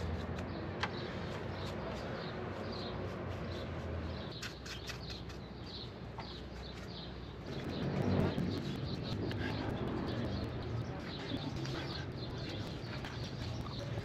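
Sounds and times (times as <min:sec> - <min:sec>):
bird chirping: 0:00.5 - 0:14.0.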